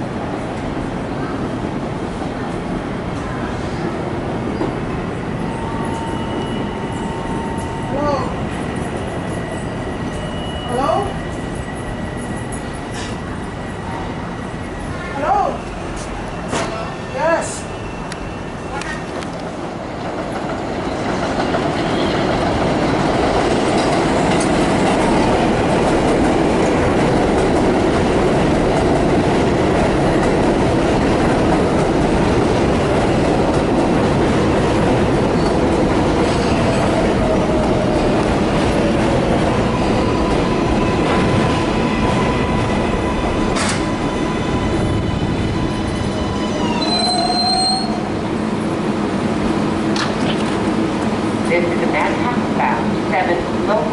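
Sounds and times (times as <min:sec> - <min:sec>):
train rumbling on rails: 0:00.0 - 0:53.9
wheel squeal: 0:45.7 - 0:48.1
short high-pitched squeal: 0:46.4 - 0:48.1.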